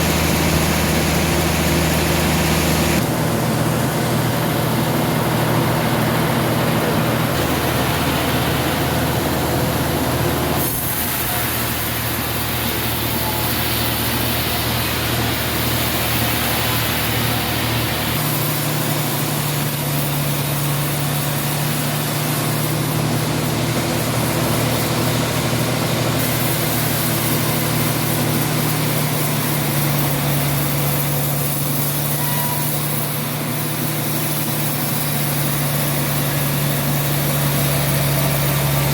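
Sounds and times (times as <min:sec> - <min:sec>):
loud hiss: 0:00.0 - 0:38.9
sawmill machinery running: 0:00.0 - 0:38.9.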